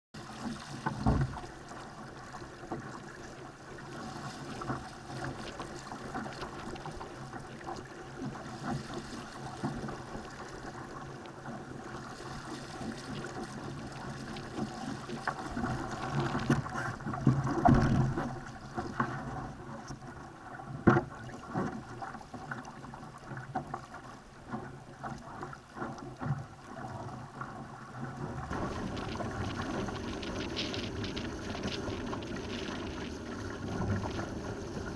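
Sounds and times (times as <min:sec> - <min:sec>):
water rushing along hull: 0:00.2 - 0:34.9
wind noise: 0:28.2 - 0:34.9.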